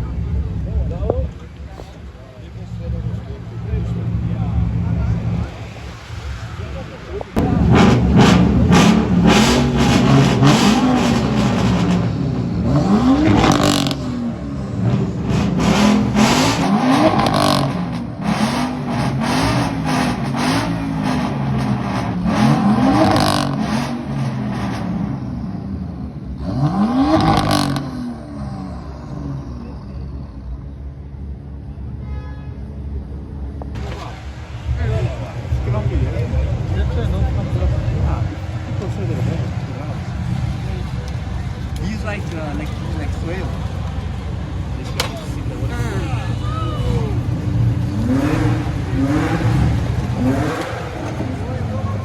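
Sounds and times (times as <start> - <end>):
car engine revving: 0.0 - 31.8, 33.0 - 52.0
sharp exhaust cracks: 33.6 - 52.0.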